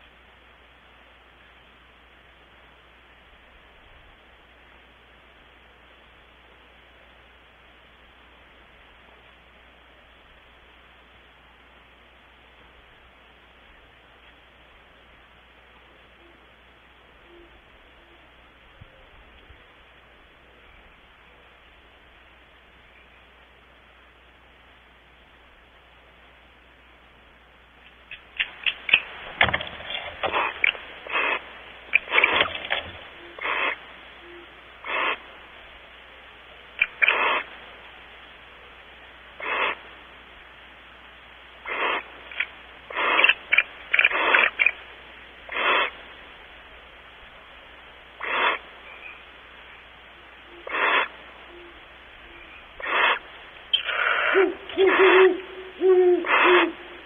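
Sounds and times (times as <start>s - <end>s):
background hiss: 0.0s - 57.0s
barn owls hissing calls: 28.1s - 40.2s, 41.6s - 46.9s, 48.0s - 57.0s.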